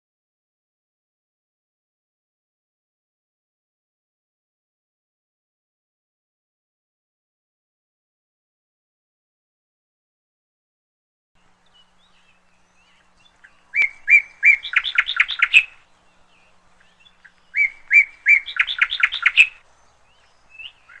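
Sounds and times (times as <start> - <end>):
faint bird chirps: 11.4 - 21.0
songbird singing: 11.4 - 21.0.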